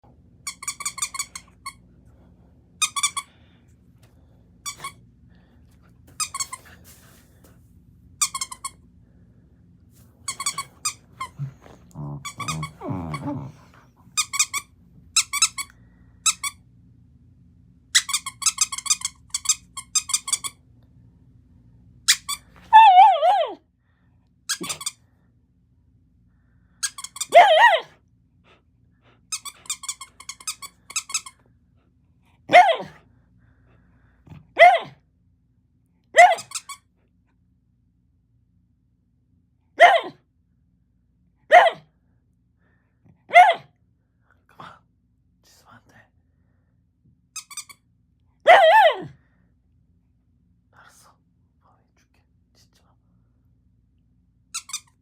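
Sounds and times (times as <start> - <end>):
dog whining: 10.3 - 14.5, 22.1 - 23.6, 27.2 - 28.0, 32.5 - 33.0, 34.6 - 35.0, 36.2 - 36.7, 39.8 - 40.2, 43.3 - 43.6, 48.5 - 49.2
dog wavering cries: 22.7 - 23.6, 27.2 - 27.9, 32.5 - 33.0, 34.6 - 34.9, 36.2 - 36.7, 39.8 - 40.2, 41.5 - 41.8, 43.3 - 43.6, 48.5 - 49.1.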